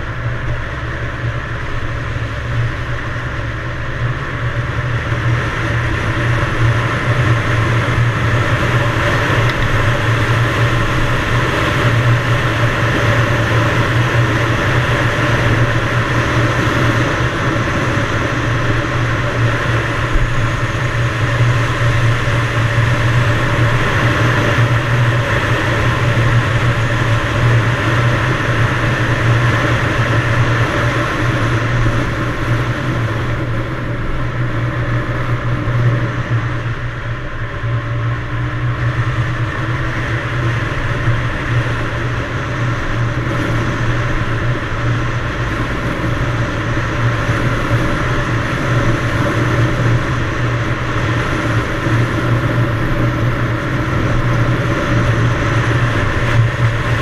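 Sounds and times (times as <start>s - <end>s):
two-stroke motorcycle engine running: 0.0s - 57.0s.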